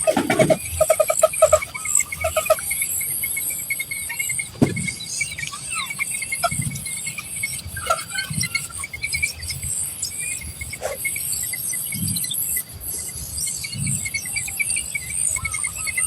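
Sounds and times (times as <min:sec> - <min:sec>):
crickets chirping: 0:00.0 - 0:16.0
high insect drone: 0:00.0 - 0:16.0
dull thumps: 0:04.5 - 0:05.0.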